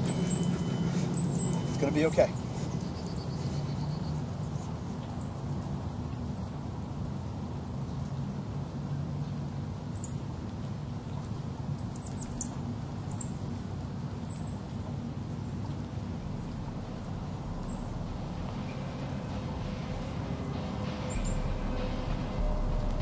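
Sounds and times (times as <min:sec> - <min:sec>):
steady low hum: 0:00.0 - 0:05.0, 0:15.7 - 0:23.0
small birds chirping: 0:00.0 - 0:09.0, 0:14.2 - 0:20.2.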